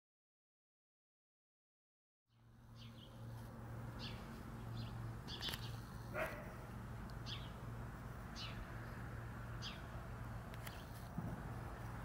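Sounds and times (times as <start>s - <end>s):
small birds chirping: 2.3s - 11.1s.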